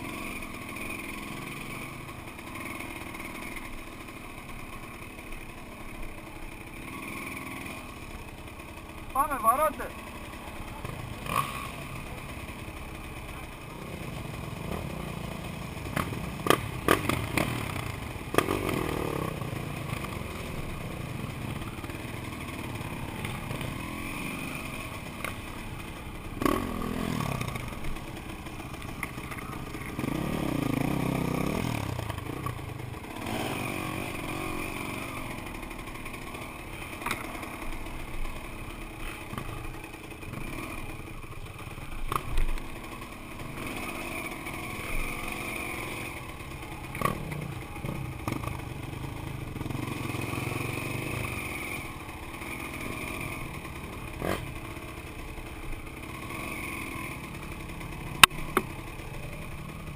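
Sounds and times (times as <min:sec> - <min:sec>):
motorcycle engines running: 0:00.0 - 0:59.9
motorcycle revving through gears: 0:00.0 - 0:59.9.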